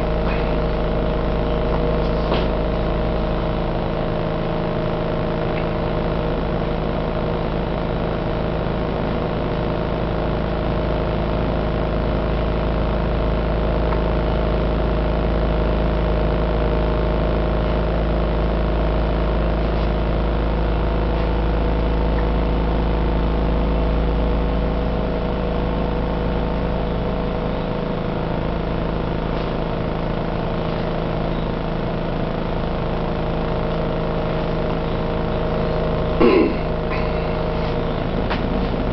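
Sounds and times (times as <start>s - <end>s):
deep rumble of road roller: 0.0s - 38.9s
machinery engine hum: 0.0s - 38.9s.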